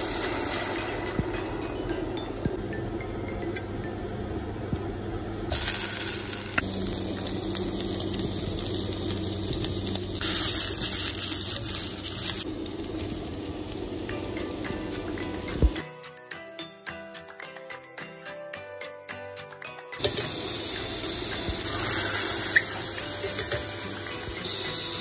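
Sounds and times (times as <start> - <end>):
food sizzling in a pan: 5.5 - 15.8, 20.0 - 25.0.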